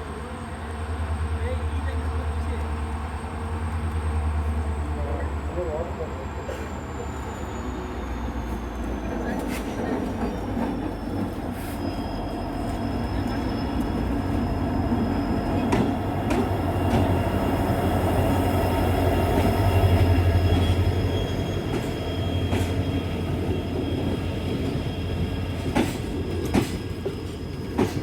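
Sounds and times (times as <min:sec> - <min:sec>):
train rumbling on rails: 0:00.0 - 0:28.0
high-pitched wheel squeals: 0:06.0 - 0:09.0, 0:11.0 - 0:16.2, 0:18.4 - 0:25.5.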